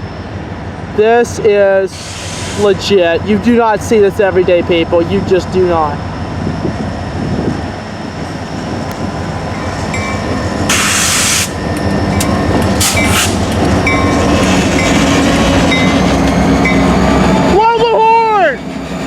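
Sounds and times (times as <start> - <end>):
diesel locomotive engine drone: 0.0 - 19.0
rail noise: 0.0 - 19.0
air hiss bursts: 1.9 - 2.7, 10.7 - 11.6, 12.8 - 13.5.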